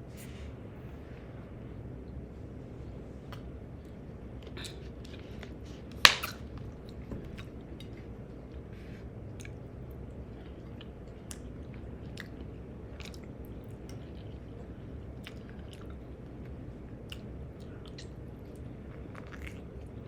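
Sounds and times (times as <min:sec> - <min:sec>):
person chewing: 0:09.4 - 0:20.0.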